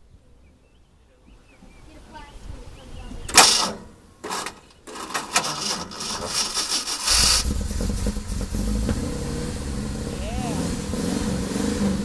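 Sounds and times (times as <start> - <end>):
engine running with deep rumble: 3.3 - 12.0
starter motor cranking engine: 3.3 - 12.0.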